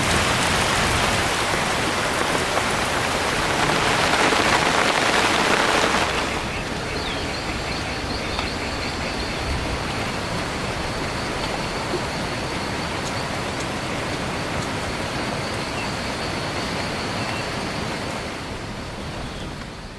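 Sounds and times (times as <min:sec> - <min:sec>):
heavy rain: 0:00.0 - 0:19.9.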